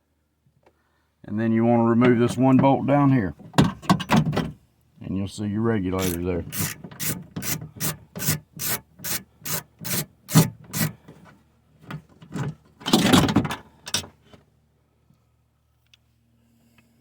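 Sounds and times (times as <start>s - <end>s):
ratchet rasping: 6.0s - 11.0s.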